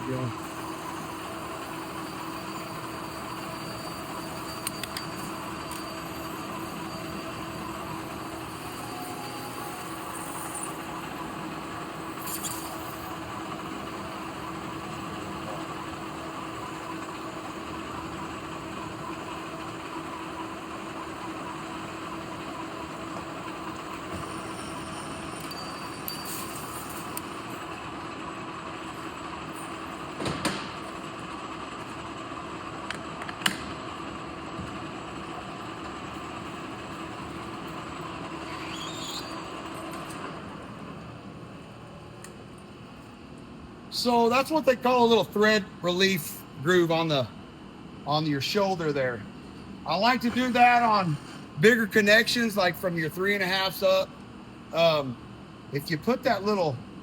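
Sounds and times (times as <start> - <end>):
metal lathe humming: 0.4 - 30.2.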